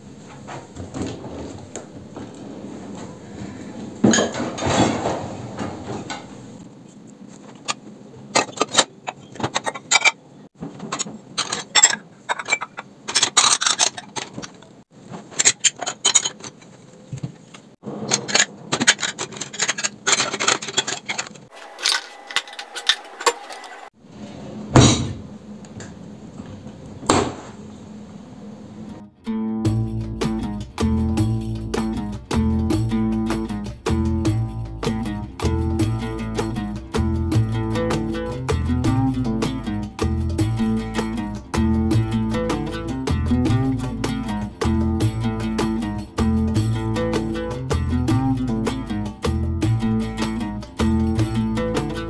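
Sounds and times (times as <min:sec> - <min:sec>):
household objects clattering: 0:00.2 - 0:06.6, 0:07.4 - 0:24.0.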